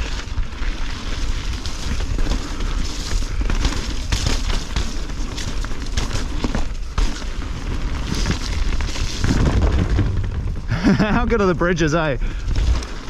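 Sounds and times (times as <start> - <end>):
bike rattling over bumps: 0.0 - 13.0
tyres rolling on dirt: 0.0 - 13.0
wind over microphone: 7.8 - 12.9.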